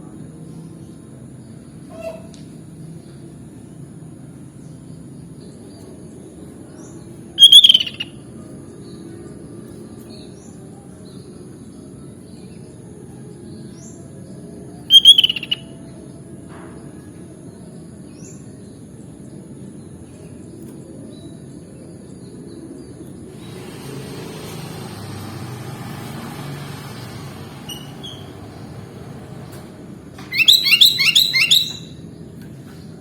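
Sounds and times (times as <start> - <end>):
bird rapid chirping: 7.4 - 8.2, 14.9 - 15.7, 30.2 - 32.0
faint high chirps: 7.4 - 8.2, 14.9 - 15.7, 30.2 - 32.0.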